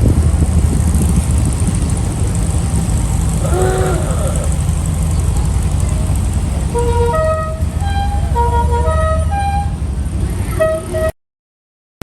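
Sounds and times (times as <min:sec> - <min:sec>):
engine and road rumble: 0:00.0 - 0:11.2
musical car horn tune: 0:06.7 - 0:09.8, 0:10.5 - 0:11.1.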